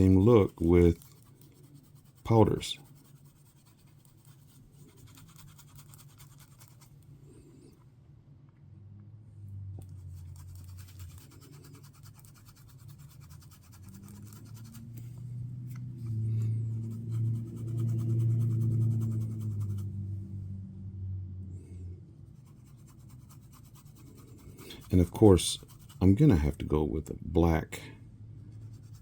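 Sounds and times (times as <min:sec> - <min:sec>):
scratchy rubbing in a mold: 0:00.0 - 0:07.0, 0:09.8 - 0:20.0, 0:22.2 - 0:26.7, 0:28.4 - 0:29.0
steady low hum: 0:00.0 - 0:29.0.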